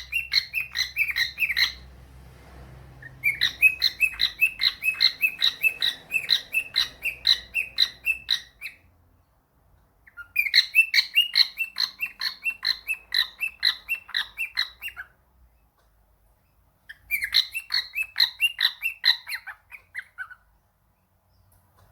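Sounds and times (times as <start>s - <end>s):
cockatiel chirping: 0.0s - 1.8s, 3.0s - 8.9s, 10.0s - 15.2s, 16.9s - 20.5s.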